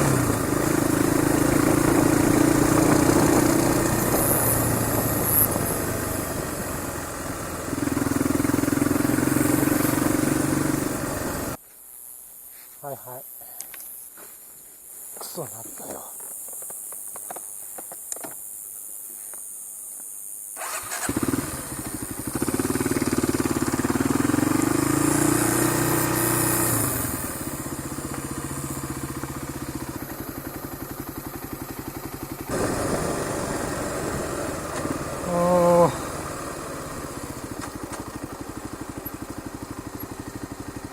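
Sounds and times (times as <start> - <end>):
motorcycle engine accelerating: 0.0 - 11.6, 20.6 - 40.9.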